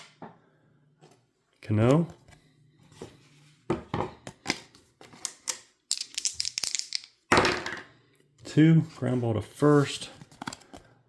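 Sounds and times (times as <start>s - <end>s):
dice rattling: 5.2s - 7.2s
dice clattering on table: 5.2s - 7.8s.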